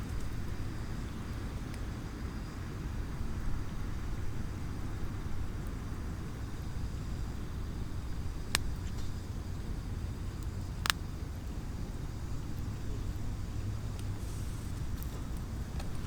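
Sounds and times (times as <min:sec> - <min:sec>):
campfire crackling pops: 0:00.0 - 0:02.0, 0:05.5 - 0:16.0
low rumble of surroundings: 0:00.0 - 0:16.0.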